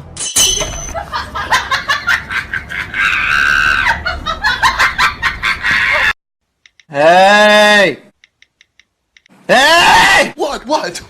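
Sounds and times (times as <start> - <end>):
person laughing: 1.0 - 6.2
person screaming: 6.9 - 8.0, 9.5 - 10.4.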